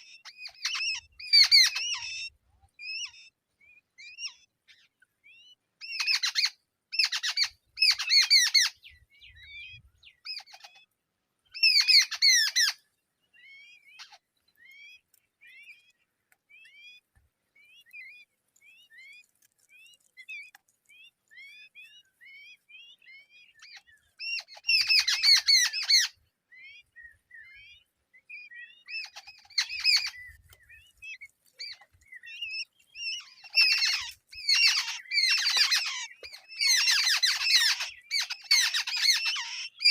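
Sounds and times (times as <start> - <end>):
thin down-slurred chirps: 13.4 - 26.2, 28.5 - 39.9
harsh raspy chick squawks: 33.0 - 39.9.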